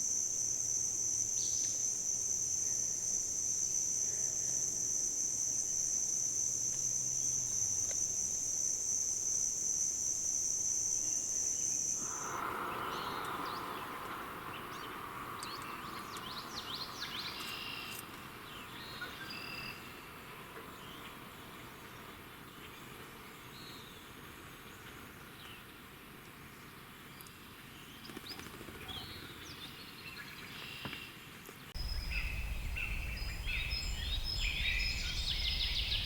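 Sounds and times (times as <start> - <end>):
high-pitched insect drone: 0.0 - 14.8, 31.8 - 36.0
bird chirps and whistles: 31.8 - 36.0.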